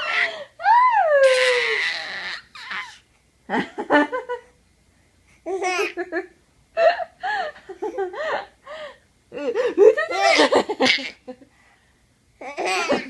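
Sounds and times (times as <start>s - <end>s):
small child laughing: 1.2s - 2.9s, 5.5s - 7.1s, 9.6s - 11.4s, 12.4s - 13.0s.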